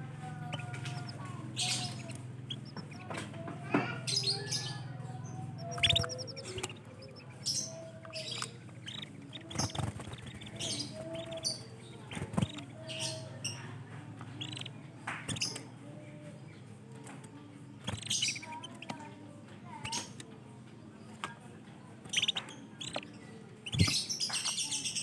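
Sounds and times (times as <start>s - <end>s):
canaries chirping: 0.0s - 25.0s.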